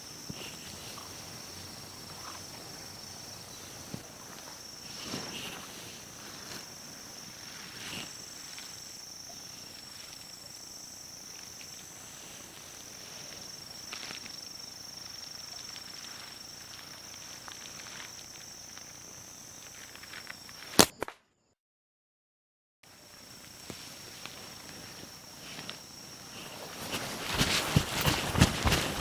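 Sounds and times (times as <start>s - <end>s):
faint ticks and rustles: 0.0s - 20.8s, 22.9s - 29.0s
insects droning: 0.0s - 21.0s, 22.8s - 29.0s
loud sharp snap: 20.7s - 21.3s.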